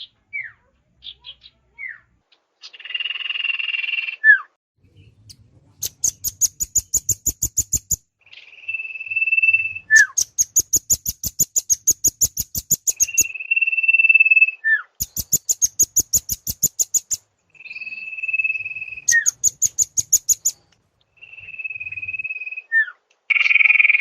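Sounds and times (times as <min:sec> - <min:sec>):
buzzy bird call: 0:05.8 - 0:13.7, 0:15.0 - 0:23.7
downslurred bird whistles: 0:05.8 - 0:23.6
steady bird trill: 0:05.8 - 0:24.0.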